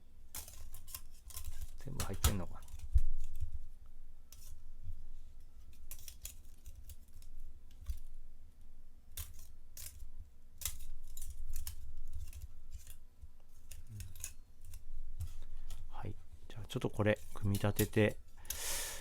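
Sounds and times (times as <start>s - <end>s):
thin metal plates clinking: 16.9s - 18.7s.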